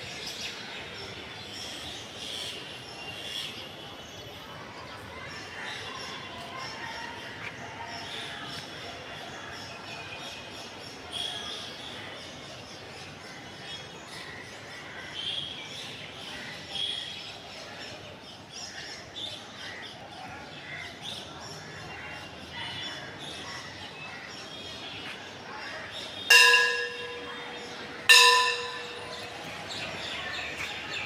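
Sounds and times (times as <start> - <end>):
birds chirping: 24.7 - 31.0
loud ringing strike: 26.3 - 27.5, 28.1 - 29.3.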